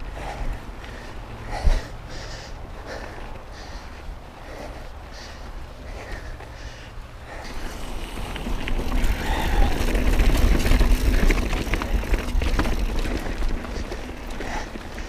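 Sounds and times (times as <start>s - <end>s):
bike tyres rolling on rock: 0.2s - 15.0s
bike rattling clicks: 7.4s - 15.0s.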